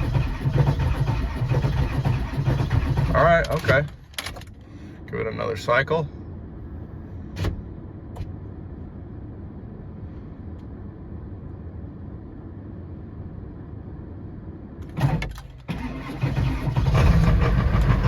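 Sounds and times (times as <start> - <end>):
starter cranking: 0.0 - 3.8
diesel engine firing up: 0.0 - 3.9, 14.8 - 18.0
steady low rumble: 0.0 - 18.0.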